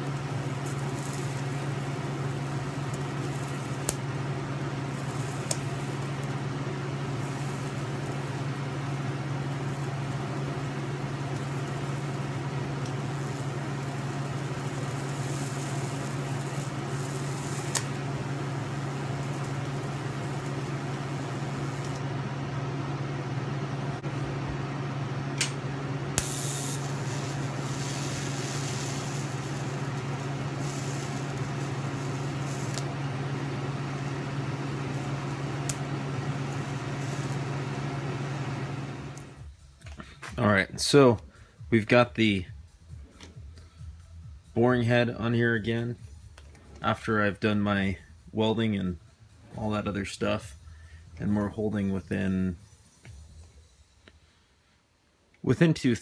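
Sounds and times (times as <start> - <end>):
low machine hum: 0.0 - 56.0
faint hiss: 26.2 - 39.2.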